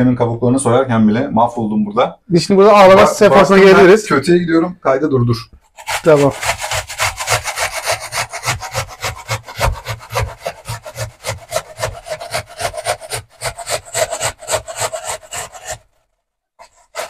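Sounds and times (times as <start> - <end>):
onion grated on hand grater: 5.7 - 16.0, 16.6 - 17.0.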